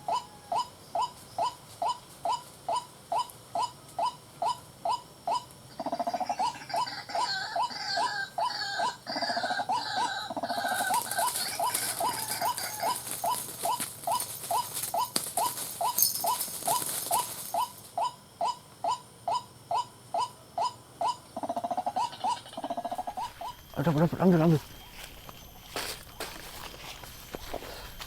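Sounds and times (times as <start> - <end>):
waterhen calling: 5.7 - 17.8, 20.6 - 25.0.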